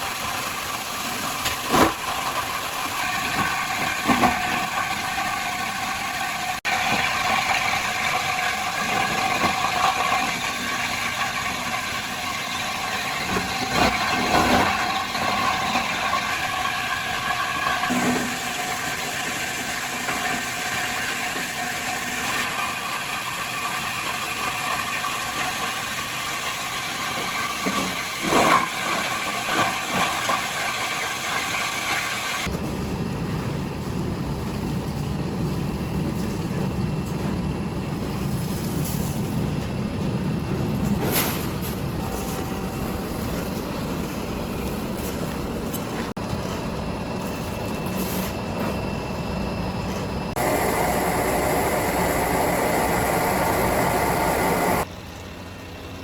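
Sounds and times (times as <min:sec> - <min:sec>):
heavy low machine noise: 0:41.6 - 0:56.0
machinery running: 0:41.6 - 0:56.0.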